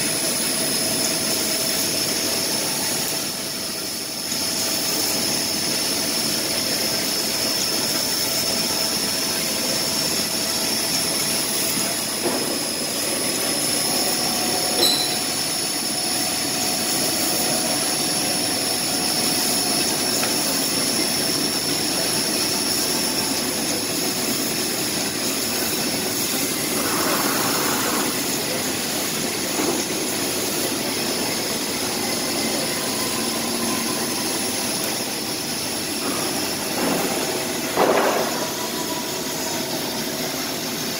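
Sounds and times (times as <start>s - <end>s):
laser cutter hiss: 0.0s - 40.9s
high-pitched whine: 10.9s - 40.8s.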